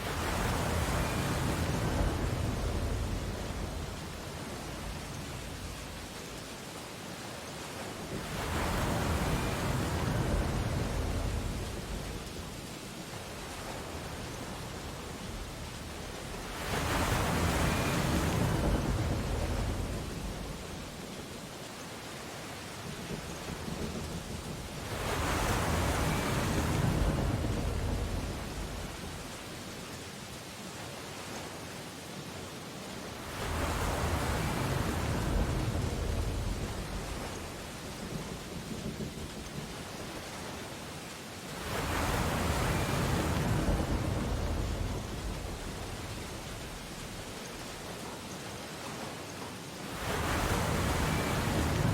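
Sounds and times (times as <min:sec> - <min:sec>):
surf hiss: 0:00.0 - 0:51.9
waves washing on beach: 0:00.0 - 0:51.9
wave breaking: 0:13.2 - 0:20.7, 0:49.9 - 0:51.9.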